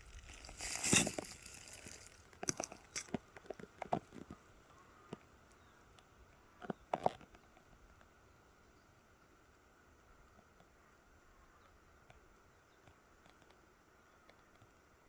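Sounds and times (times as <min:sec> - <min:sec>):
rotten wood breaking by hand: 0:00.0 - 0:03.2.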